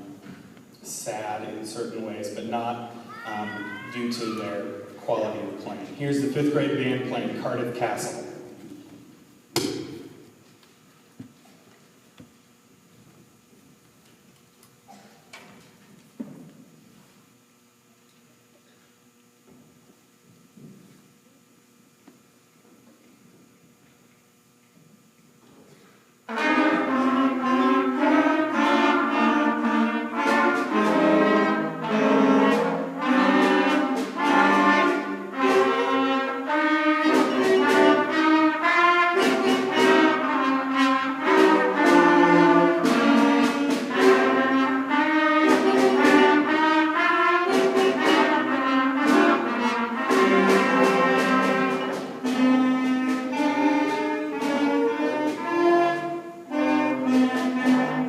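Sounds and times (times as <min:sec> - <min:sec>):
concert band playing: 0:00.8 - 0:08.4, 0:26.3 - 0:58.0
percussion strikes: 0:09.5 - 0:10.4, 0:26.3 - 0:58.0.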